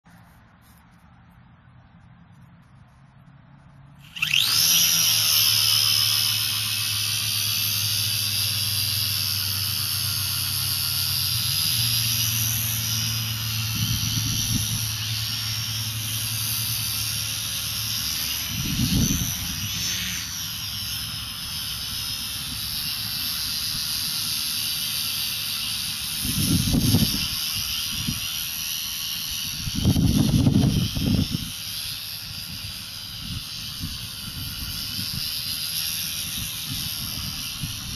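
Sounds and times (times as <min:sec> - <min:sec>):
rc helicopter motor whine: 0:03.7 - 0:37.9
low buffeting wind gusts: 0:29.4 - 0:31.6.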